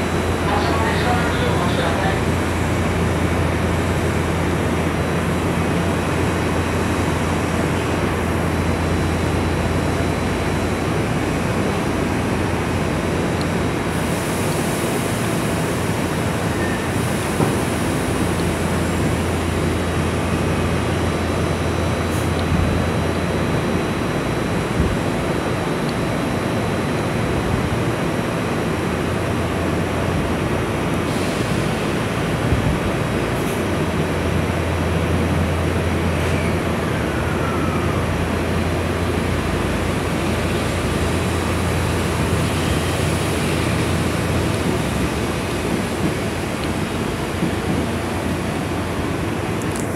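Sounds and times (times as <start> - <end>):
train equipment humming: 0.0 - 49.9.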